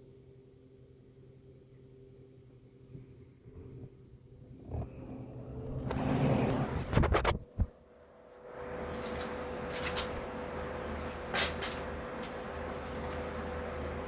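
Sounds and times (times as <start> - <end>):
electric fans whirring: 0.0 - 14.0.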